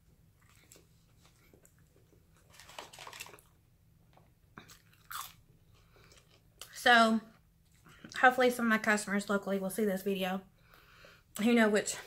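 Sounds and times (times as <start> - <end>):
person chewing: 0.3 - 3.6, 4.6 - 6.7.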